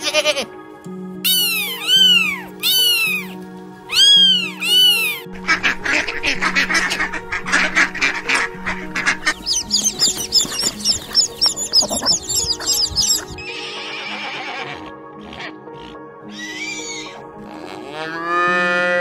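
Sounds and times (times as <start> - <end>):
background music: 0.0 - 19.0
duck quacking: 1.3 - 13.3
chicks peeping: 1.3 - 13.5
horse whinnying: 3.9 - 5.2, 13.4 - 15.6.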